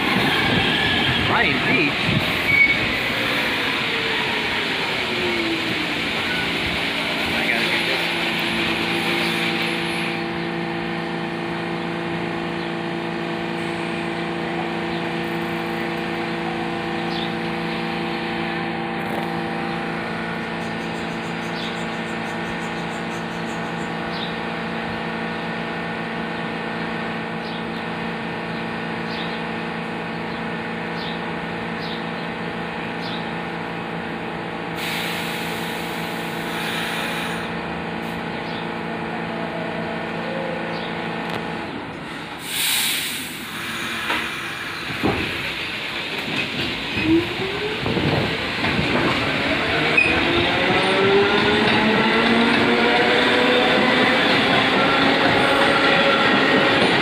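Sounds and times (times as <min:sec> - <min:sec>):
train running: 0:00.0 - 0:57.0
hiss: 0:34.8 - 0:37.5, 0:42.4 - 0:45.4.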